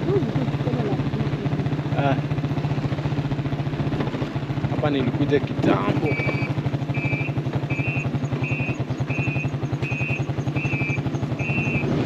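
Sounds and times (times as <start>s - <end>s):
motorcycle engine running: 0.0s - 12.0s
two-tone electronic beep: 6.0s - 11.9s.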